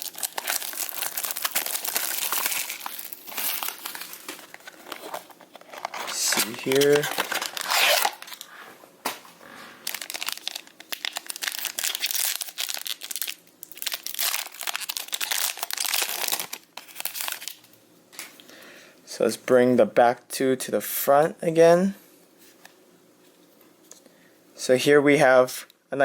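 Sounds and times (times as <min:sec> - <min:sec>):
plastic packaging crinkling: 0:00.0 - 0:08.5, 0:09.8 - 0:18.3.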